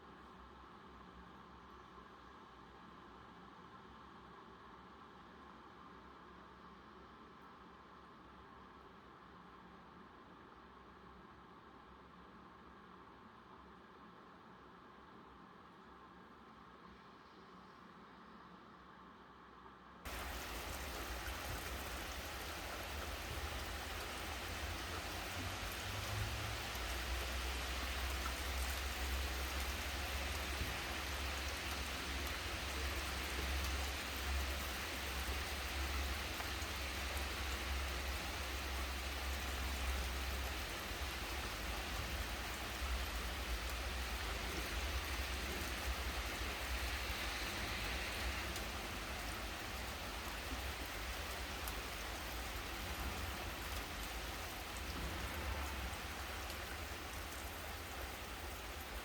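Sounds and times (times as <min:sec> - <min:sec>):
low steady rumble: 0:15.1 - 0:59.0
steady rain falling: 0:20.1 - 0:59.0.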